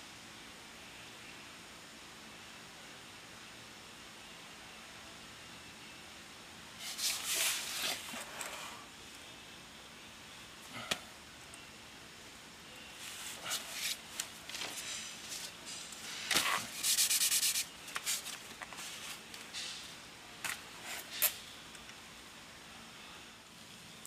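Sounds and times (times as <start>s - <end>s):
rubbing and scraping handling noises: 6.8s - 8.8s, 13.0s - 19.8s.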